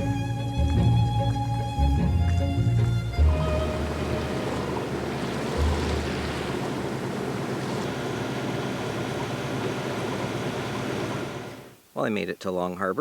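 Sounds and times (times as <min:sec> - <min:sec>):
boat engine running: 0:00.0 - 0:11.8
wind and water rushing: 0:03.2 - 0:11.8.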